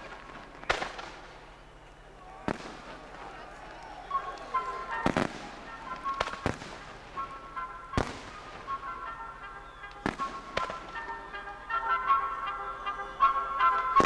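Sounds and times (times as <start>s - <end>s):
fireworks bangs: 0.0s - 14.0s
music with held notes: 3.6s - 14.0s.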